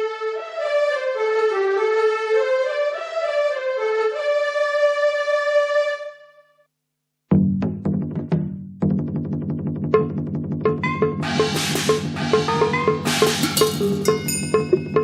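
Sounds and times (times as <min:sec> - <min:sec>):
low drum-like percussion hits: 0:09.9 - 0:14.3
keyboard melody: 0:10.0 - 0:15.0.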